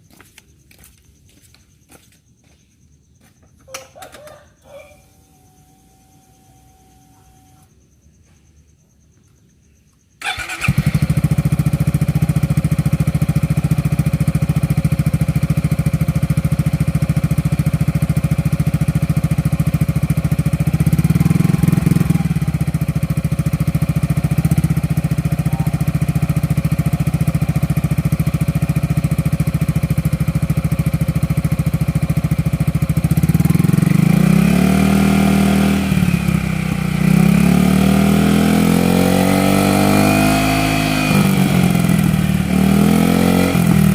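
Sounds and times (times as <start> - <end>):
scooter engine starting and idling: 3.6 - 7.8, 10.2 - 43.9
scooter engine revving: 10.2 - 43.9.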